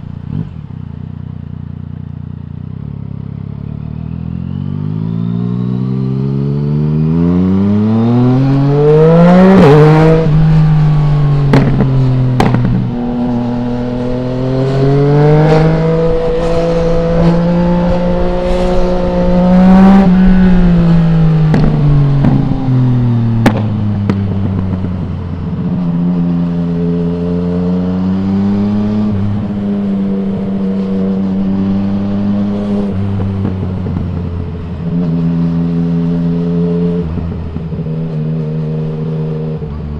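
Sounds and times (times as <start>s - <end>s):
motorcycle engine revving: 0.0s - 39.9s
exhaust cracks: 11.4s - 13.1s.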